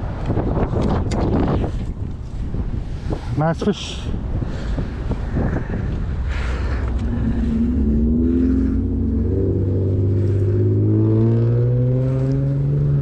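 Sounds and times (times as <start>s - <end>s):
engine speeding up: 6.8s - 13.0s.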